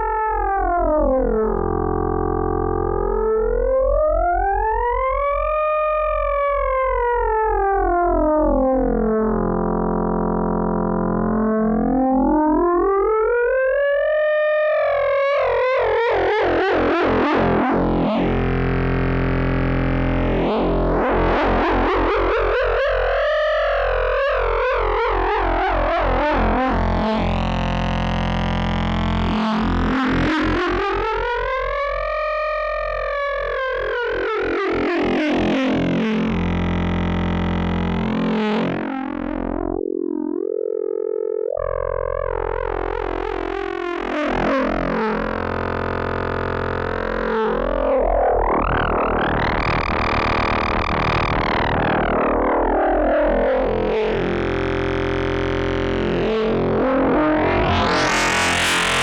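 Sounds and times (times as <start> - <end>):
steady synth bass: 0.0 - 13.2, 43.1 - 59.0
synthesizer drone: 44.0 - 59.0.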